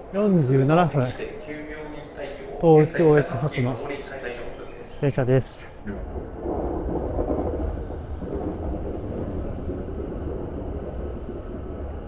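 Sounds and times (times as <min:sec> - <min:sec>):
train wheels rumbling: 0:05.9 - 0:12.0.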